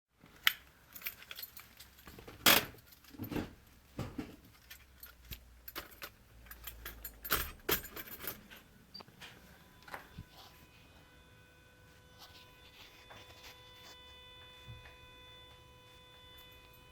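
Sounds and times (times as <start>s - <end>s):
handling clicks and metallic rattles: 0.3s - 9.1s.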